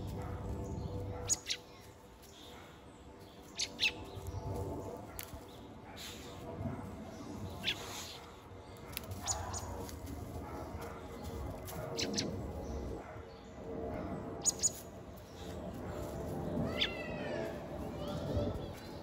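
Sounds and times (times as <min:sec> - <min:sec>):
rustling in dry leaves: 0:15.3 - 0:19.0.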